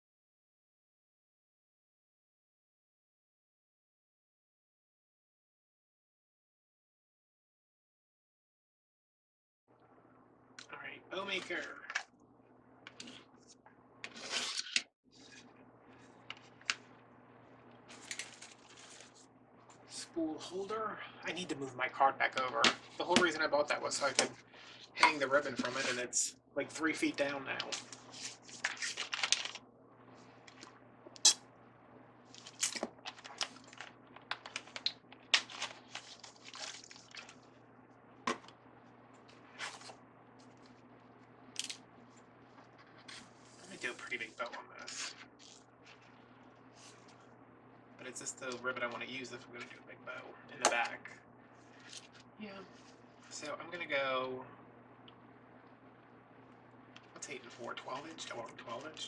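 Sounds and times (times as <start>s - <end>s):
faint low hum: 9.7s - 14.5s, 15.1s - 59.0s
rustling scrape: 17.9s - 19.3s.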